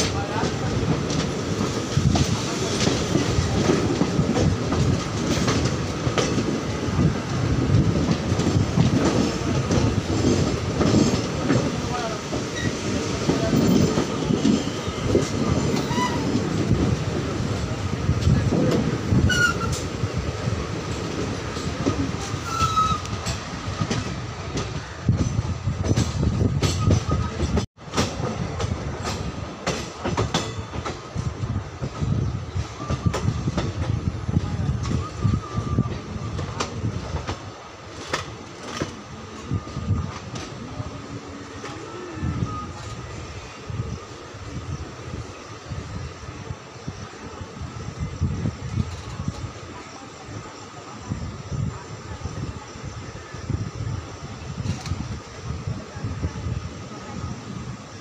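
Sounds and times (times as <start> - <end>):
rail joints clacking: 0.0 - 51.2
train wheels rumbling: 0.0 - 58.0
high wheel squeals: 19.2 - 19.9, 22.3 - 23.3.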